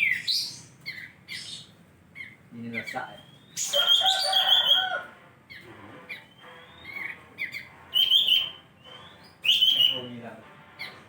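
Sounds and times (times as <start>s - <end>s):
bird singing whistled phrases: 0.0s - 1.7s, 2.8s - 5.0s, 6.1s - 10.2s.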